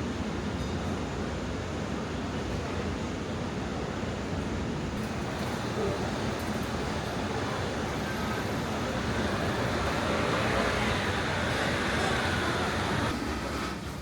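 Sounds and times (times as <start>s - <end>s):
road traffic passing: 4.9s - 14.0s.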